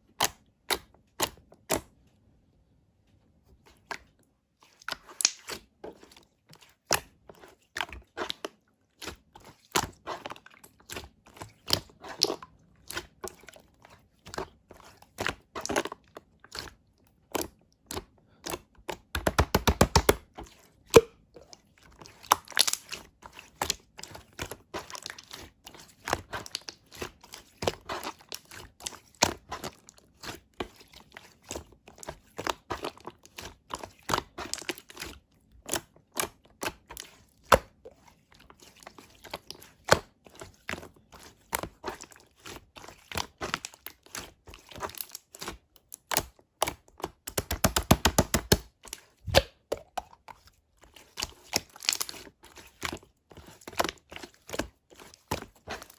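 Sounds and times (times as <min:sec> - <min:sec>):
slime crackling and popping: 0:05.2 - 0:05.4, 0:22.3 - 0:23.0.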